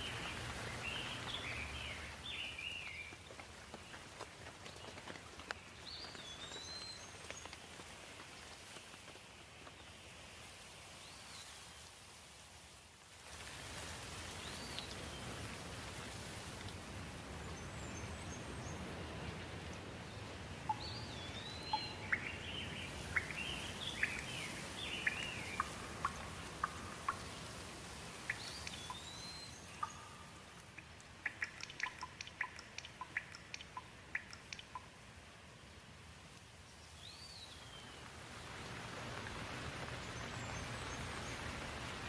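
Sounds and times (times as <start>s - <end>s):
stream water rushing: 0.0s - 3.1s, 13.4s - 34.5s.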